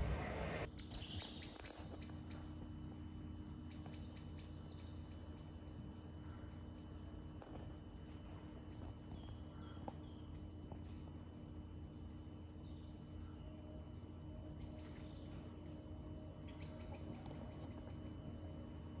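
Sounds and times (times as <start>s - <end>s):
steady low hum: 0.0s - 19.0s
small birds chirping: 8.2s - 19.0s.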